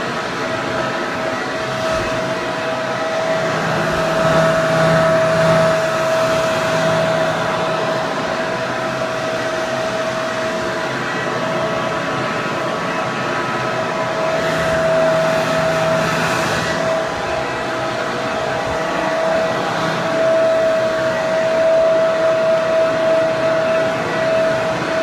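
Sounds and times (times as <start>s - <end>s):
hair dryer running: 0.0s - 25.0s.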